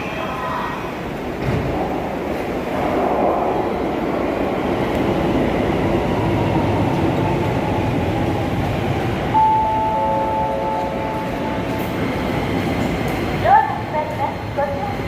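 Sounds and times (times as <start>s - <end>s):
train wheels rumbling: 0.0s - 15.0s
chime of held tones: 9.4s - 11.3s.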